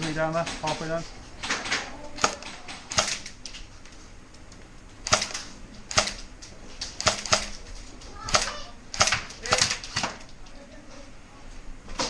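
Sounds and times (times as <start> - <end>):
airsoft guns firing: 1.4 - 3.4, 5.0 - 6.3, 7.0 - 7.6, 8.2 - 10.3.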